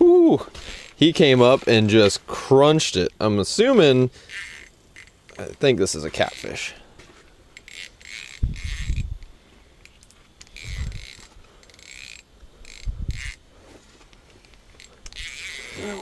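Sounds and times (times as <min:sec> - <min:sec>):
fishing reel drag buzzing: 0:03.7 - 0:06.8, 0:07.5 - 0:13.5, 0:14.4 - 0:16.0.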